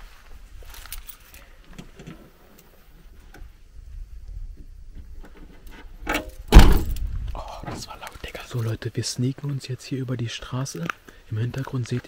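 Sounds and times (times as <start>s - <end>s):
footsteps: 0.0s - 1.5s
sudden loud bang: 6.5s - 7.3s.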